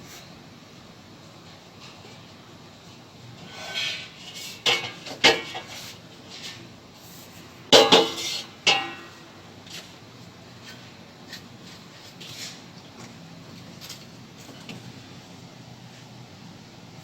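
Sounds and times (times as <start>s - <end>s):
metal objects clanking together: 3.8s - 6.6s, 7.7s - 9.1s.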